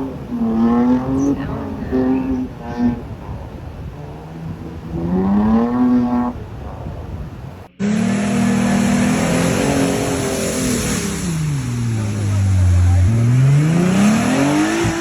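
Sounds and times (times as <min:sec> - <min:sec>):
off-road vehicle engine revving: 0:00.0 - 0:07.1, 0:07.7 - 0:15.0
engine revving hard: 0:07.8 - 0:15.0.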